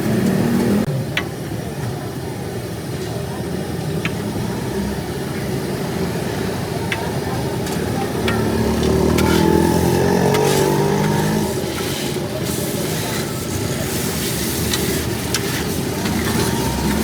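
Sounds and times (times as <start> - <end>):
vehicle engine passing: 0.0 - 0.9, 4.4 - 12.6
street noise: 0.0 - 17.0.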